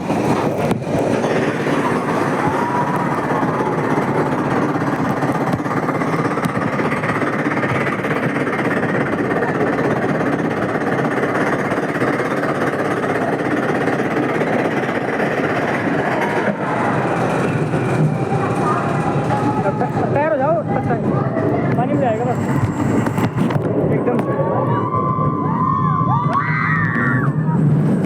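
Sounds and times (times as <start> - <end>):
water ride rushing noise: 0.0 - 22.2.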